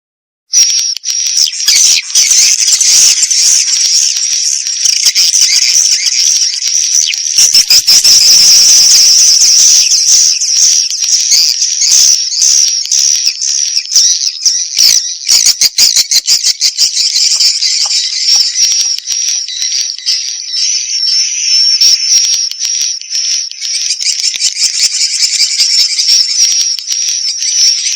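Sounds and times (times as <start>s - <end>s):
swiftlets twittering and chirping: 0.5s - 27.9s
quick clicks: 0.6s - 14.0s.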